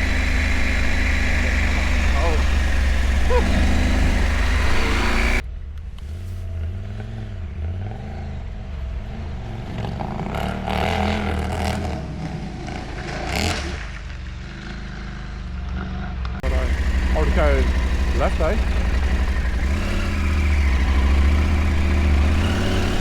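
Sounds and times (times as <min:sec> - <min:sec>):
motorcycle engine running: 0:00.0 - 0:05.5, 0:13.8 - 0:23.0.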